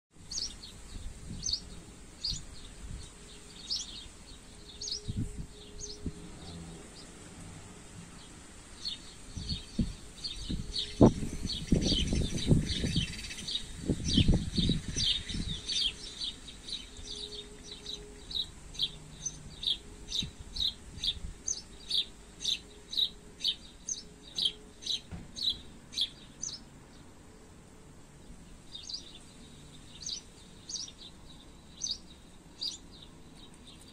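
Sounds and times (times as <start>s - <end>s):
small birds chirping: 0.2s - 27.5s, 28.1s - 33.9s
wind buffeting microphone: 0.4s - 3.9s, 4.8s - 6.5s, 8.8s - 16.1s, 19.6s - 21.6s.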